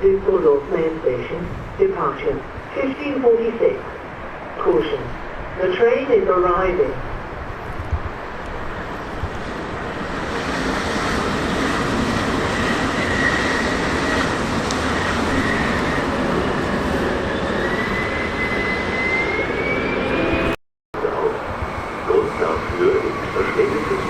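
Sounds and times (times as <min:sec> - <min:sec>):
train wheels rumbling on rails: 0:07.2 - 0:19.6
high squeal of brakes: 0:17.2 - 0:20.3.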